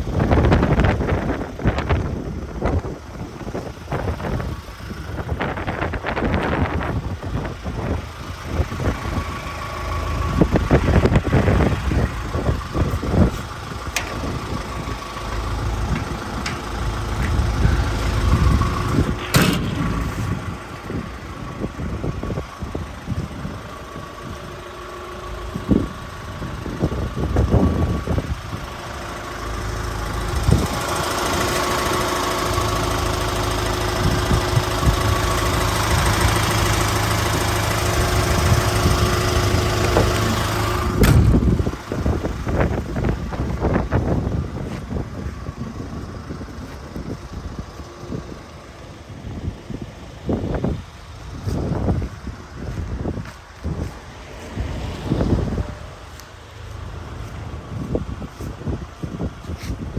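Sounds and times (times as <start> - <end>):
diesel engine running: 0.0 - 59.9
clunks and thumps: 15.3 - 21.0, 39.8 - 41.6.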